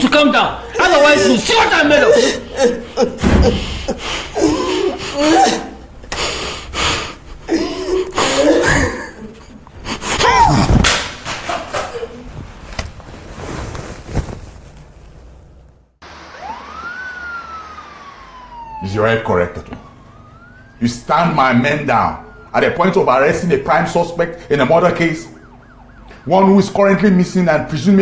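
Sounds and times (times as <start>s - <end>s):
person sobbing: 0.6s - 10.8s.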